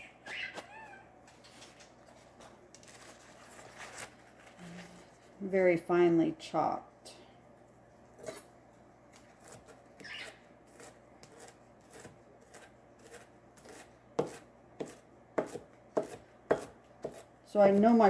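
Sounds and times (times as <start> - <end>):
knife chopping vegetables: 9.2 - 18.0.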